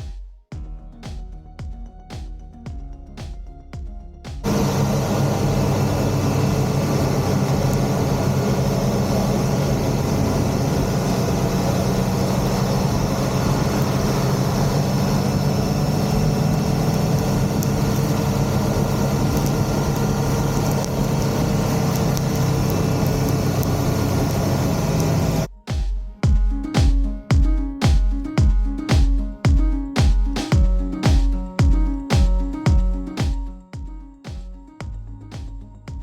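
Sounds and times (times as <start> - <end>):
motorcycle engine running: 4.4 - 25.5.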